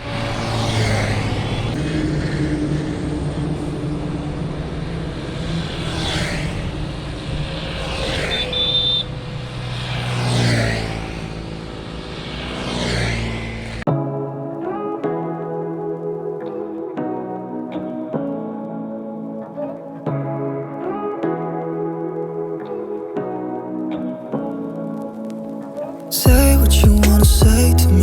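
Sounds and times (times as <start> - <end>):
road traffic hum: 0.0 - 13.9, 25.0 - 28.0
vehicles passing close by: 0.0 - 13.9.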